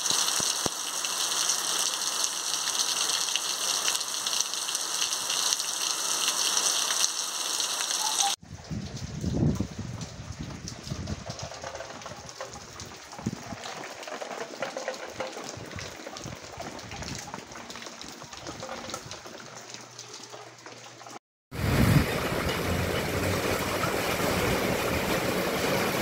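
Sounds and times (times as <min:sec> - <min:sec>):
rain falling: 0:00.0 - 0:26.0
water running along ground: 0:00.0 - 0:26.0
raindrop hits: 0:08.0 - 0:26.0.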